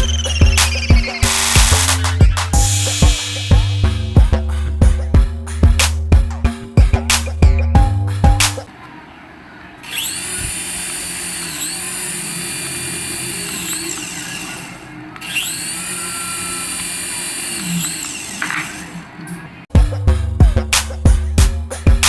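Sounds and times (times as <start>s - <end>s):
toy motor whining: 0.0s - 2.7s, 9.8s - 19.5s.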